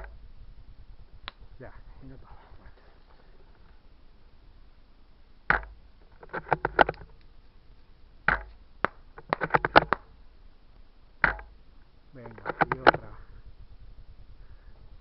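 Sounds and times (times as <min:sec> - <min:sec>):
airsoft rifle shot: 0:05.5 - 0:05.8, 0:08.3 - 0:10.1, 0:11.2 - 0:11.6.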